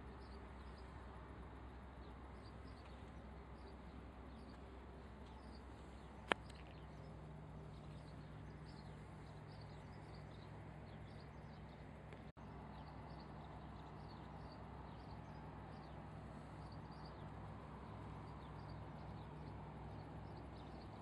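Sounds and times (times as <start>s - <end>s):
small birds chirping: 0.0s - 21.0s
steady low hum: 0.0s - 21.0s.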